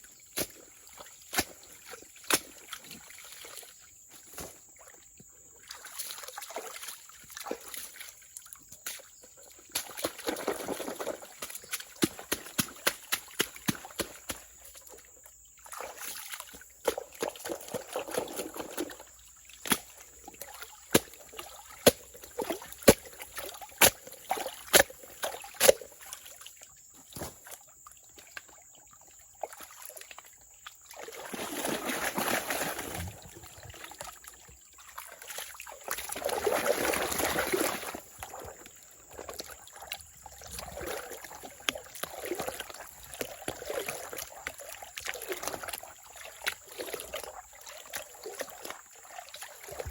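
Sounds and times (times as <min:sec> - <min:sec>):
water sloshing and trickling: 0:00.0 - 0:49.9
rushing water splashes: 0:30.9 - 0:49.9.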